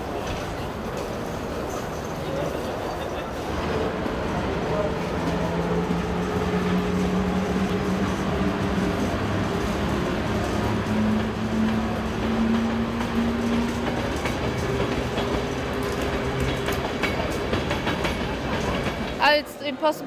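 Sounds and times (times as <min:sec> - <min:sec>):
train rumbling: 0:00.0 - 0:20.0
train motor hum: 0:03.4 - 0:19.2.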